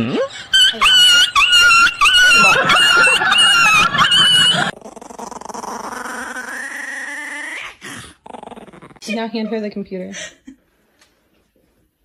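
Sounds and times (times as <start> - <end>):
dog yelping: 0.4 - 4.8.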